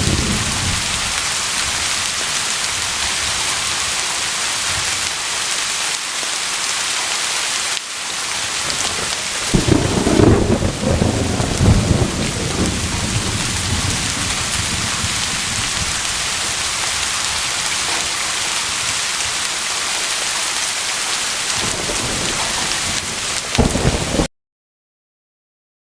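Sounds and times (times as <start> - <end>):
thunder rumbling: 0.0 - 4.0, 8.4 - 19.5, 21.5 - 24.3
heavy rain hissing: 0.0 - 24.3.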